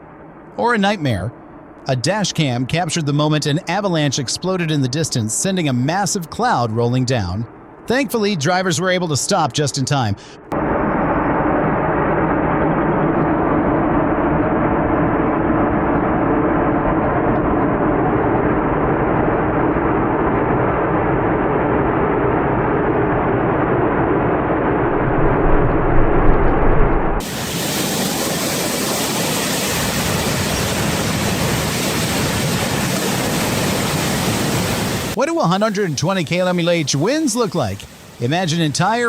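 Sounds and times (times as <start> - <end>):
muffled vehicle rumble and hum: 10.5 - 27.2
wind noise on microphone: 10.5 - 35.2.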